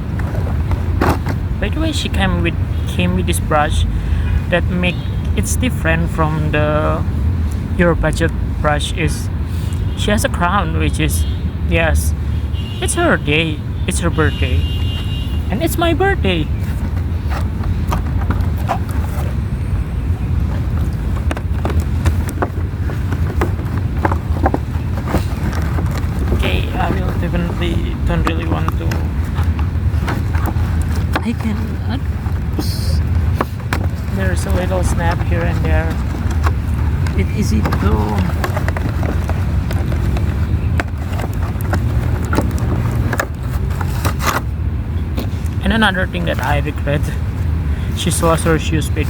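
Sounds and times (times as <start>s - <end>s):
cardboard and plastic crackling: 14.8s - 19.7s, 20.3s - 44.6s
steady low rumble: 15.4s - 40.8s.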